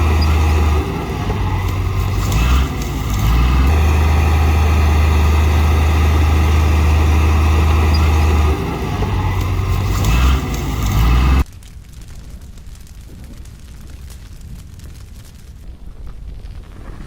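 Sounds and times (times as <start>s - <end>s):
bulldozer diesel engine rumbling: 0.0s - 11.5s.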